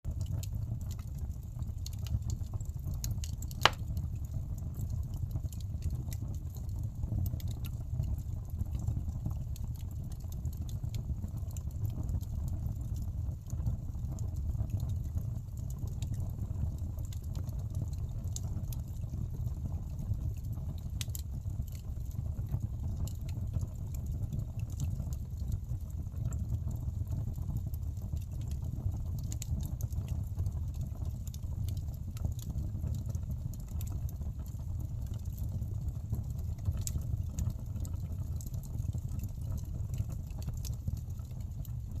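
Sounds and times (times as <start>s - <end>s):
logs crackling and popping: 0.1s - 42.0s
fire flames rushing: 2.7s - 5.9s.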